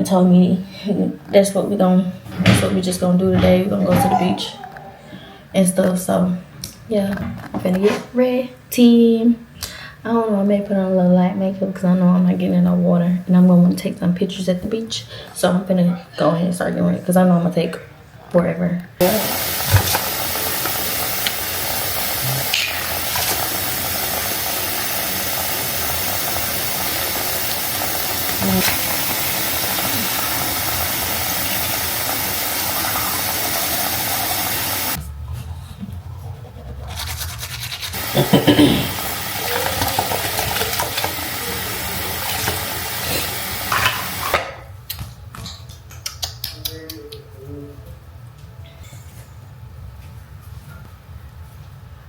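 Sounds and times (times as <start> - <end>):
steady hissing: 19.0 - 35.0, 37.9 - 44.3
tap water running into sink: 19.0 - 35.0, 38.0 - 44.3.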